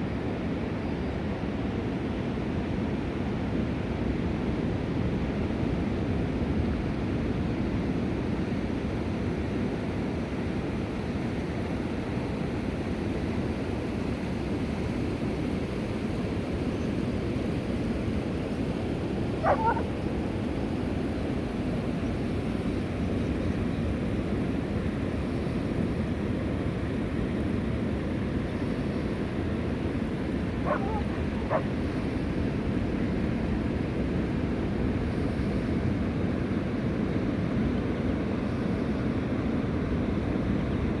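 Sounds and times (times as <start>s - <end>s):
gull call: 19.4s - 19.9s, 30.6s - 31.7s.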